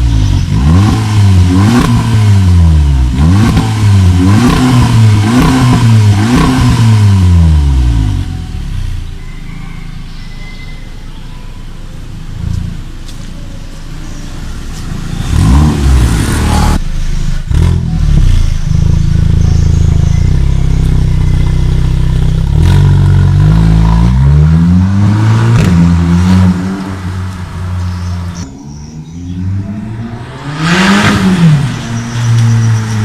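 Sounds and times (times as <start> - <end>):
car engine revving: 0.0 - 9.2, 14.3 - 33.0
exhaust cracks: 14.8 - 33.0.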